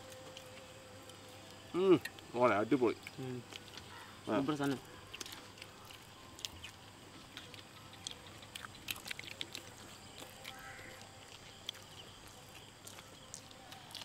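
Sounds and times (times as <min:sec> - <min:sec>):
people chewing bread: 0:00.0 - 0:14.0.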